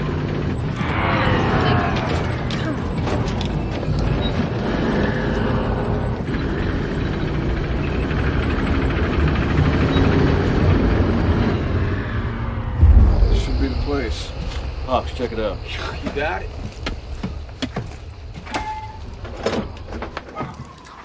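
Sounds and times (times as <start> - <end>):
loud low engine drone: 0.0 - 16.7.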